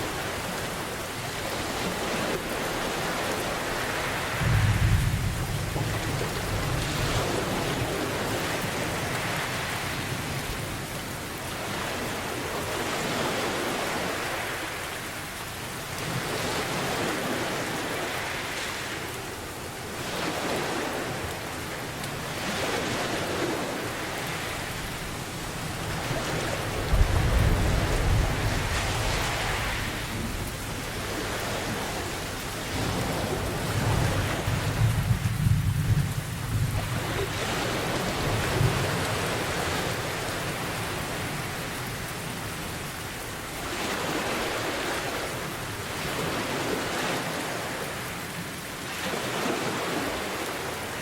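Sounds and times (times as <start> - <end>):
rain hiss: 0.0 - 48.9
ocean waves washing in: 0.0 - 51.0
low thunder rumbling: 4.4 - 7.9, 26.7 - 31.1.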